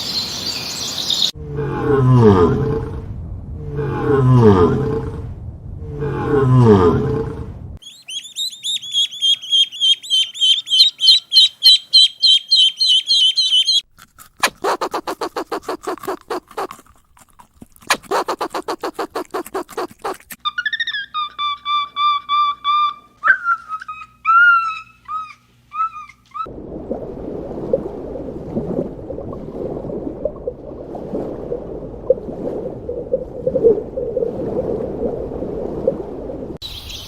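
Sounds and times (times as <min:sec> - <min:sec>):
bird chirping trill: 0:07.8 - 0:13.8, 0:36.6 - 0:37.0
rapid pulsed animal calls: 0:07.8 - 0:13.8.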